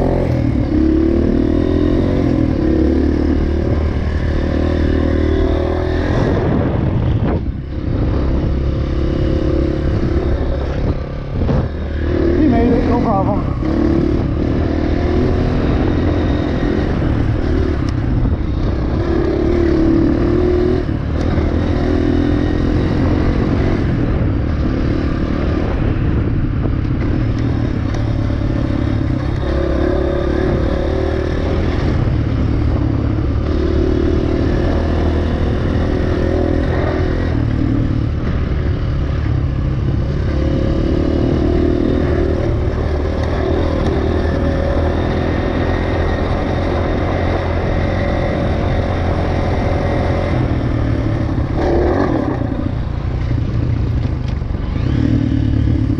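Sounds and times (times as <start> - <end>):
dirt bike engine revving: 40.1 - 53.2, 54.5 - 55.9.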